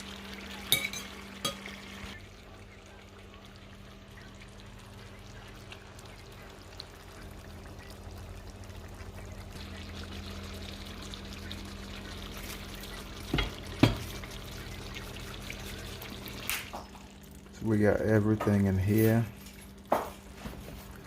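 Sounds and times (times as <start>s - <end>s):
liquid pouring into a pan: 0.0s - 18.1s.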